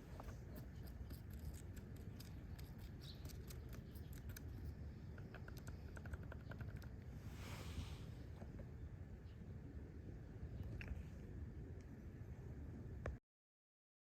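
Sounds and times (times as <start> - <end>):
steady low hum: 0.0 - 13.2
regular ticking clicks: 5.1 - 6.9.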